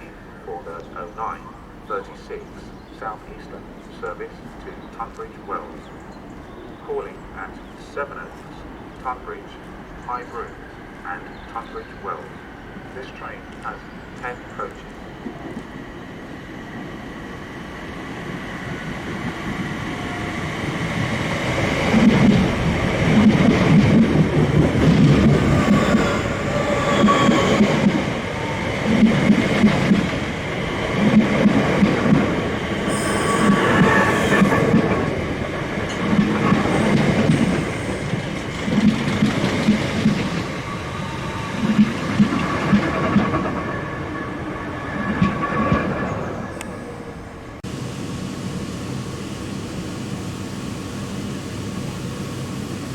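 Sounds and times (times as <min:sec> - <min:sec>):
train running into platform: 0:00.0 - 0:52.9
thin wheel squeal: 0:32.9 - 0:34.8.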